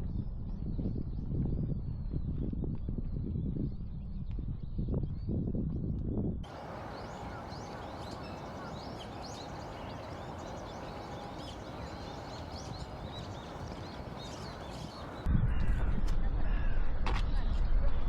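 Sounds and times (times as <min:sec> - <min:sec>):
steady background hum: 0:06.4 - 0:15.3
birds chirping: 0:06.5 - 0:15.3.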